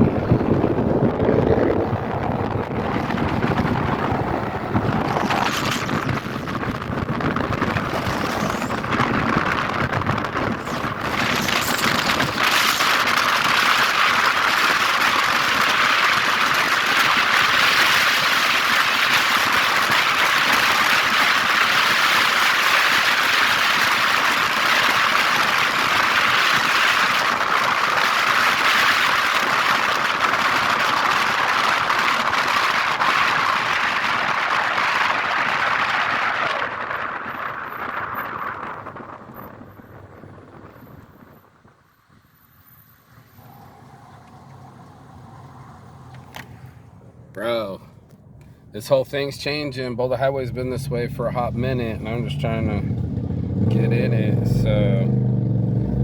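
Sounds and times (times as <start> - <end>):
road and wind noise hiss: 0.0 - 56.0
vehicle rumble: 0.0 - 56.0.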